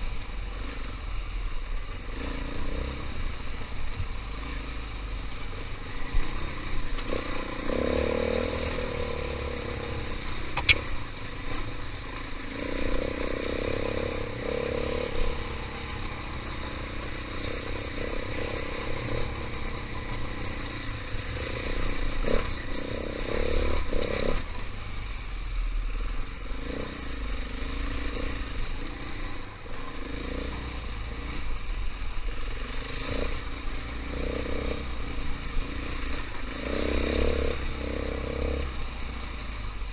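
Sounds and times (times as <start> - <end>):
dirt bike engine revving: 5.9 - 24.6, 32.2 - 39.5.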